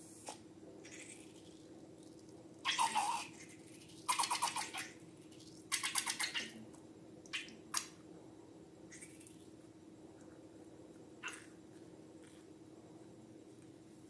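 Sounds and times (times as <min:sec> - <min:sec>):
faint squelch: 0:00.0 - 0:08.0
steady low hum: 0:00.0 - 0:14.0.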